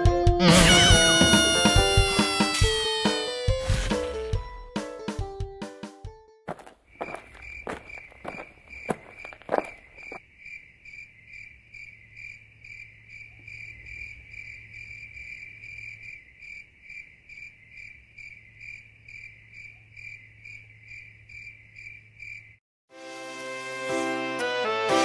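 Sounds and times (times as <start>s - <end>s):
crickets chirping: 6.5s - 22.6s.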